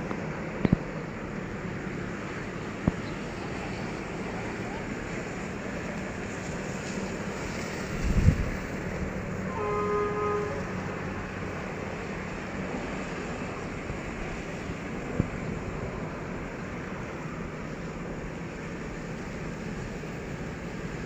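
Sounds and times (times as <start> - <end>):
locomotive rumbling drone: 0.0 - 21.0
multi-tone train horn: 9.4 - 11.2.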